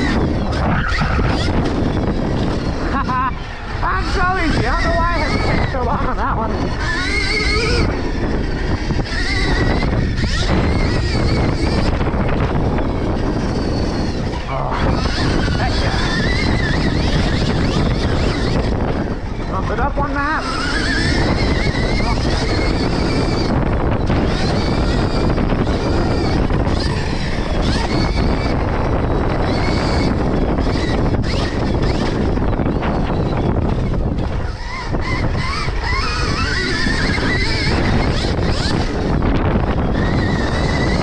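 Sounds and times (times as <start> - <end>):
electric motorbike motor whining: 0.0 - 41.0
tyres on dirt: 0.0 - 41.0
wind rumble: 0.0 - 41.0.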